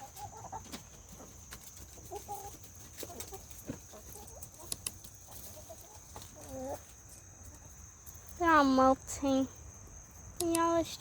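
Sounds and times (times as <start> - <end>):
chickens clucking: 0.0 - 8.6
sharp clicks: 10.4 - 10.8.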